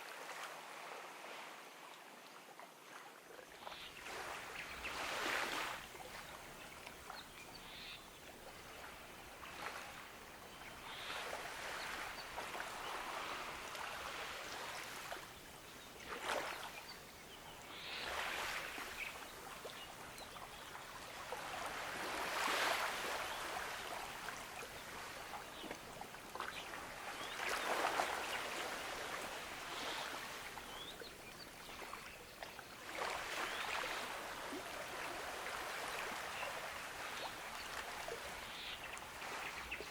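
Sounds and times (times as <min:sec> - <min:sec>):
ocean waves washing onto beach: 0:04.0 - 0:07.4, 0:08.3 - 0:15.4, 0:17.6 - 0:31.0, 0:32.8 - 0:39.9.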